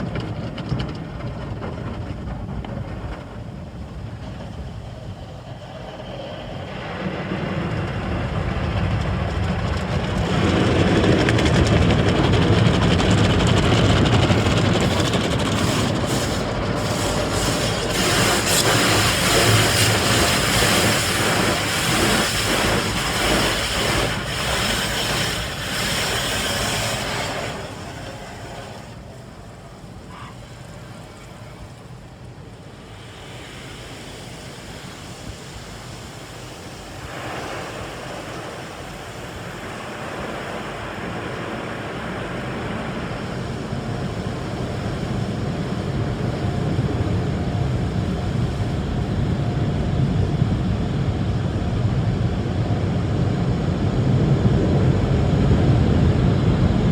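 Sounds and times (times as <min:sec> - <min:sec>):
steady rushing noise: 0:00.0 - 0:56.9
car wash hissing: 0:10.2 - 0:50.6.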